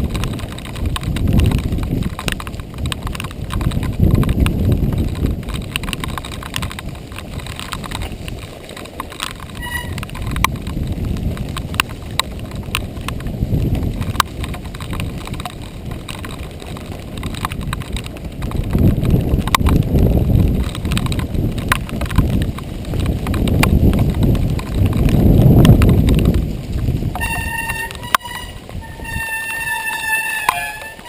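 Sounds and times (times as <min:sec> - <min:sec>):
bike clicks and rattles: 0:00.0 - 0:31.0
tyres rumbling on dirt: 0:00.0 - 0:31.0
short squeak: 0:09.6 - 0:10.0, 0:27.2 - 0:31.0.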